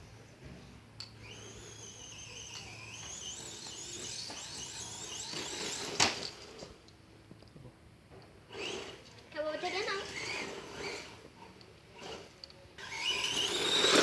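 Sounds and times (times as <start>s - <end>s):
toy electric motor whining: 1.2s - 6.8s, 8.5s - 14.0s.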